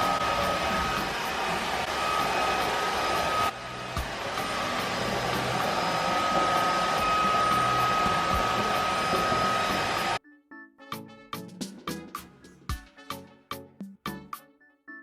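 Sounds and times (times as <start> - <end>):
electric air appliance whine: 0.0 - 10.2.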